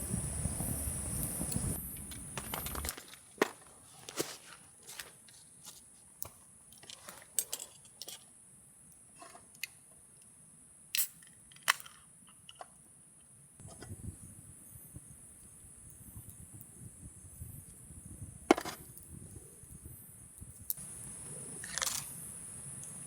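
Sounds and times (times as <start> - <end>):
insects droning: 0.0 - 7.4, 13.6 - 23.0.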